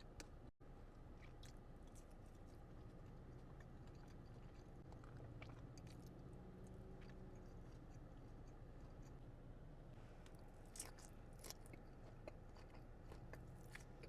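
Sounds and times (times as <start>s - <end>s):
person chewing: 0.0s - 9.2s, 10.2s - 14.0s
low steady hum: 0.0s - 14.0s.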